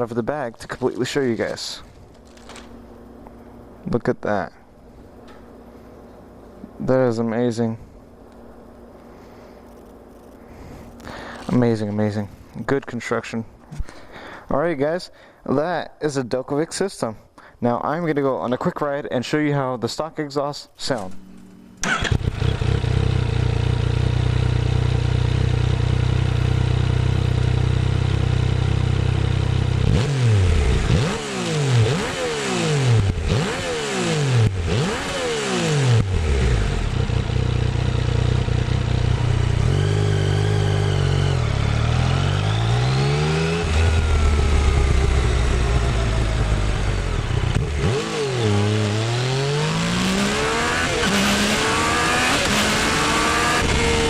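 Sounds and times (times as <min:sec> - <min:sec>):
motorcycle engine: 0:01.9 - 0:03.8, 0:21.2 - 0:54.0.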